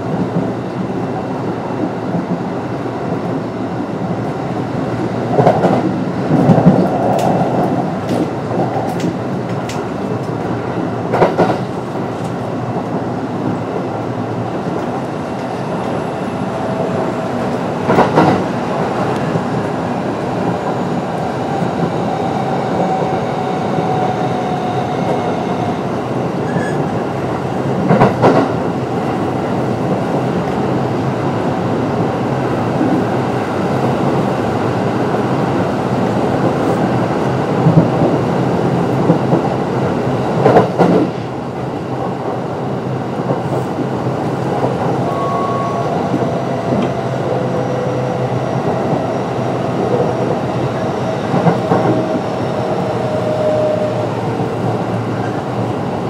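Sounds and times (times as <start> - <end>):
loud train noise bursts: 0.0 - 56.0
train wheels rumbling on rail: 0.0 - 56.0.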